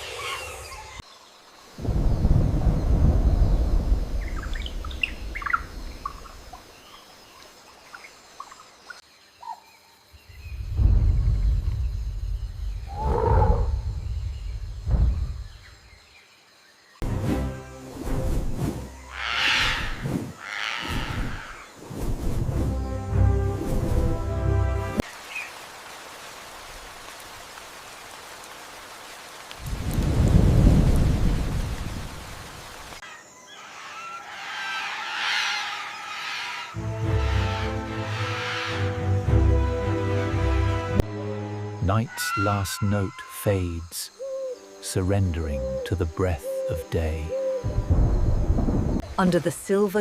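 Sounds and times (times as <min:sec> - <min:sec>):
birds chirping: 0:00.0 - 0:17.0, 0:33.0 - 0:50.0
steady rain hiss: 0:00.0 - 0:33.1, 0:34.3 - 0:50.0
low thunder rumble: 0:01.8 - 0:06.5, 0:10.2 - 0:15.9, 0:29.6 - 0:32.4, 0:47.6 - 0:49.1
low rumble: 0:10.3 - 0:15.7
music: 0:17.0 - 0:19.2, 0:22.4 - 0:25.0, 0:36.8 - 0:42.0.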